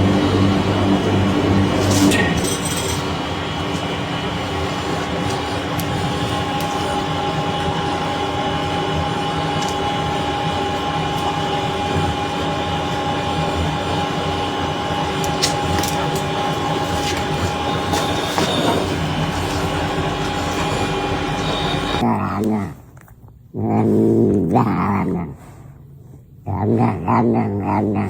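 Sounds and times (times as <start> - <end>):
constant hum tones: 0.0 - 22.1
steady mechanical drone: 0.0 - 22.1.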